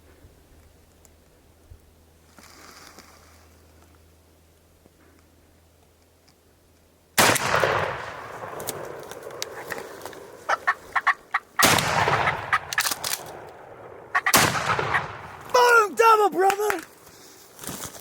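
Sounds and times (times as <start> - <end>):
wild turkey gobbling: 9.4 - 12.9, 14.1 - 15.2.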